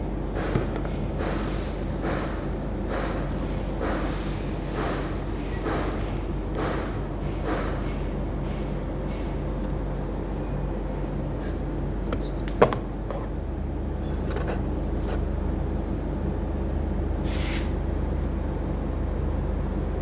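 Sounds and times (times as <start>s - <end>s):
short hiss: 17.2s - 17.7s.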